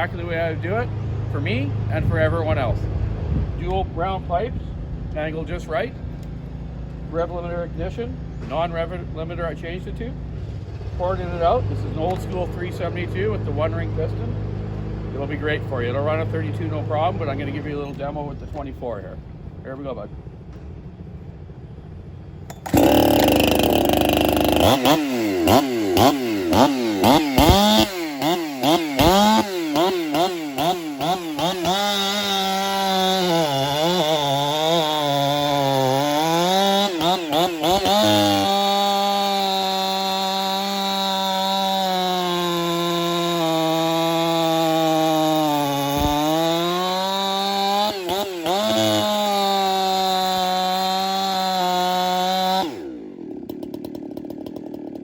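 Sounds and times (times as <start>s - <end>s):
chainsaw revving and cutting wood: 0.0s - 3.0s, 5.1s - 18.7s, 22.5s - 55.0s.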